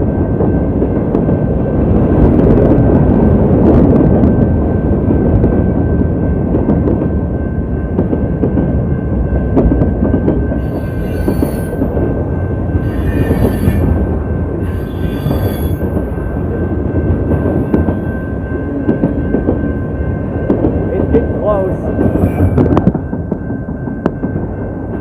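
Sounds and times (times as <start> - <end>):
train wheels rumbling on rail: 0.0 - 25.0
high-pitched wheel squeals: 10.6 - 11.9, 12.8 - 16.1.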